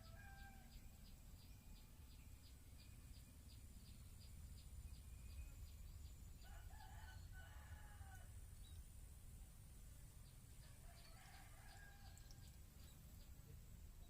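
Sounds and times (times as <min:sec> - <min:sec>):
rooster crowing: 0:00.0 - 0:00.8, 0:06.4 - 0:08.3, 0:10.6 - 0:12.5.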